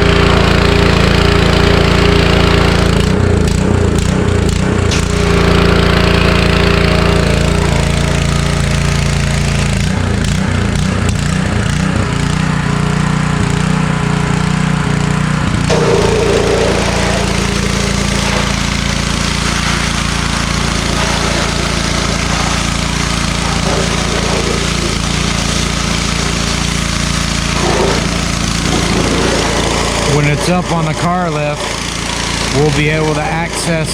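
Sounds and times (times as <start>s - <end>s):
small engine running: 0.0s - 33.9s
water spray hissing: 15.7s - 33.6s.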